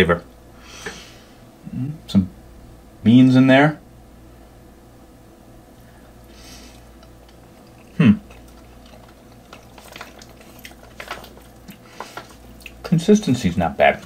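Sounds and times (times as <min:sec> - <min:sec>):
person chewing food: 0:06.0 - 0:12.9.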